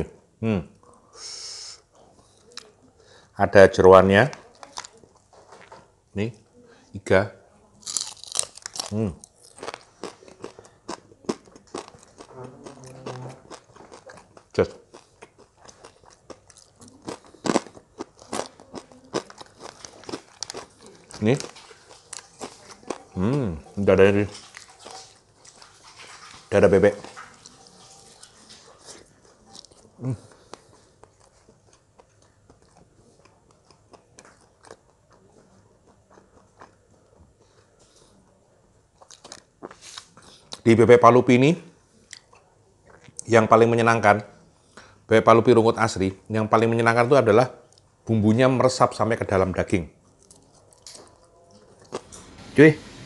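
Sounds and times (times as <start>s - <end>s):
crunching and chewing food: 1.9s - 3.2s, 4.2s - 6.1s, 7.7s - 40.7s, 42.0s - 43.4s, 50.0s - 52.4s.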